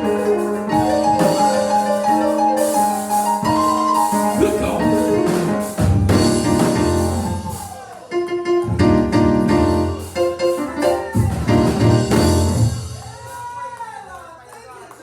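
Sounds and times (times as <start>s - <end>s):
church organ chords: 4.3s - 5.3s.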